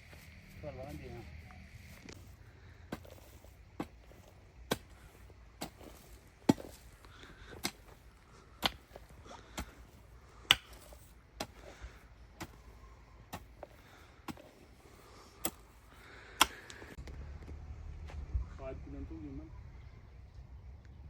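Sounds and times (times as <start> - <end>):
hand tool chopping blows: 10.5 - 11.6.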